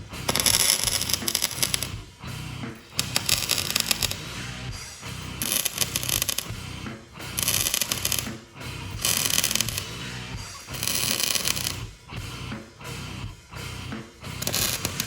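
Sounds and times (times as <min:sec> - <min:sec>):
background music: 0:00.0 - 0:15.0
welding arc crackling: 0:00.2 - 0:02.0, 0:02.8 - 0:04.4, 0:05.4 - 0:06.6, 0:07.3 - 0:08.3, 0:08.9 - 0:11.8, 0:14.4 - 0:15.0.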